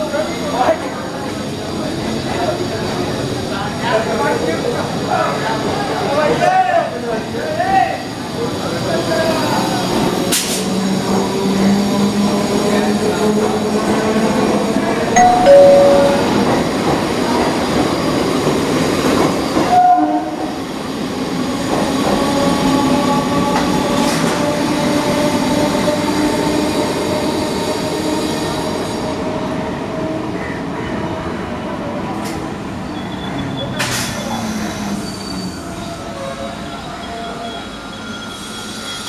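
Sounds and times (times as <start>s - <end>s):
train wheels rumbling on rails: 0.0s - 15.2s, 16.2s - 30.5s
train horn toots: 19.7s - 20.5s.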